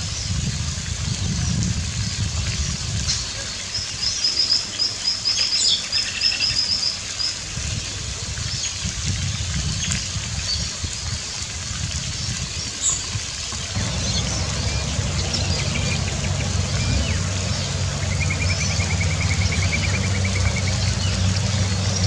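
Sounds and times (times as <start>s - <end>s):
steady low rumble: 13.7s - 22.0s.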